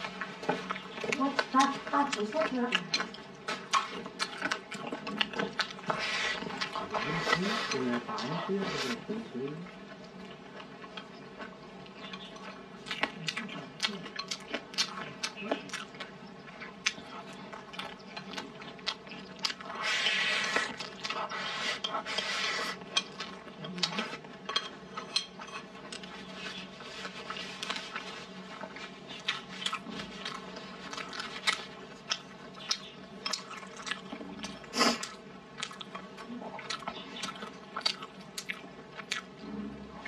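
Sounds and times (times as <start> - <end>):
wet chewing and smacks: 0.0 - 8.4, 9.5 - 24.3, 25.7 - 39.4.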